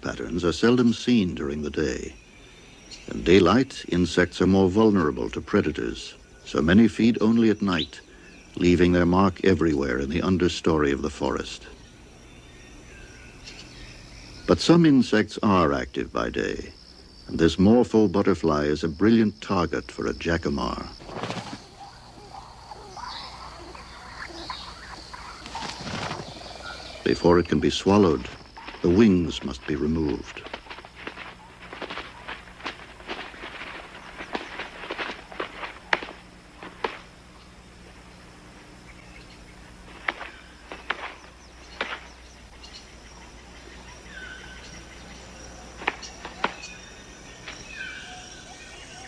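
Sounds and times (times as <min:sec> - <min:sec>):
bird calls: 0:00.0 - 0:49.0
faint low hum: 0:00.0 - 0:49.0
high insect trill: 0:00.0 - 0:49.0
bird beating prey on perch: 0:21.0 - 0:37.1.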